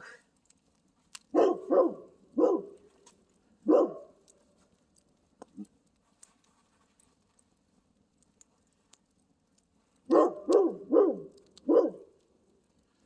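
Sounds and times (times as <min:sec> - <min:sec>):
dog barking: 0:01.3 - 0:02.8, 0:03.6 - 0:04.2, 0:10.1 - 0:12.1.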